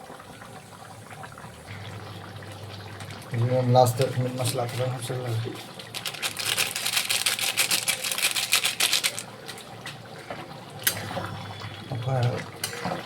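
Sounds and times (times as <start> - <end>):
utensil clicking rapidly: 6.0 - 9.2.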